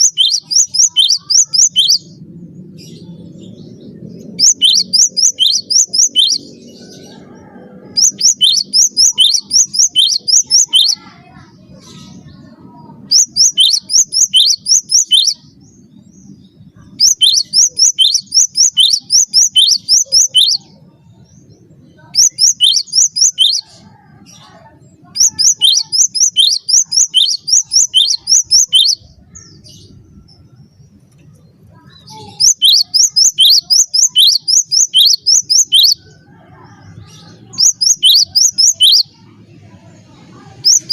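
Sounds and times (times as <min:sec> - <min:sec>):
bird singing sharp high notes: 0:00.0 - 0:02.2, 0:04.4 - 0:06.6, 0:08.0 - 0:11.1, 0:13.0 - 0:15.6, 0:16.9 - 0:20.7, 0:22.0 - 0:23.6, 0:25.1 - 0:29.5, 0:32.1 - 0:36.0, 0:37.5 - 0:39.2.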